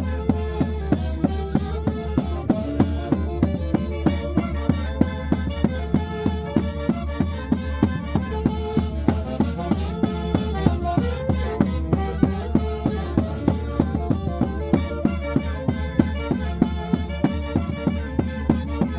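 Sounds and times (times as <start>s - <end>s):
reedy wind melody: 0.0s - 18.9s
steady fast beat: 0.0s - 18.9s.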